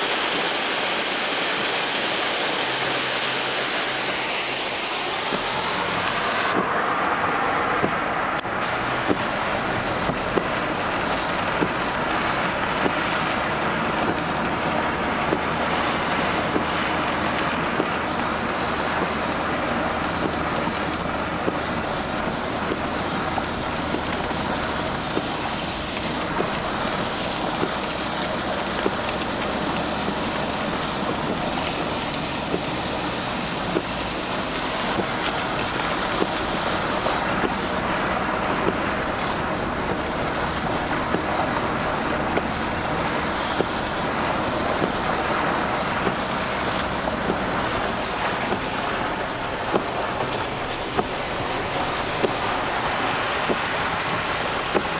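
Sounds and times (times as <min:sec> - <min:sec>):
torrent of rushing water: 0:00.0 - 0:54.9.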